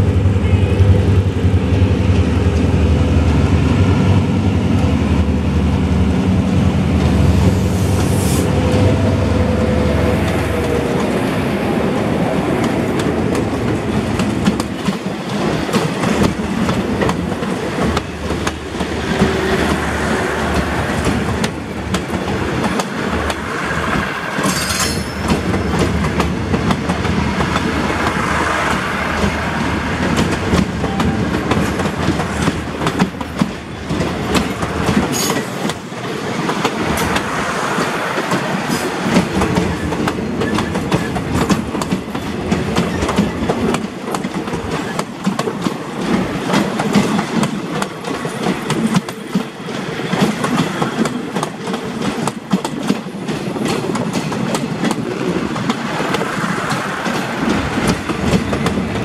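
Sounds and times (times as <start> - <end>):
train rumble: 0.0 - 59.0
train wheels clicking over rail joints: 11.8 - 59.0.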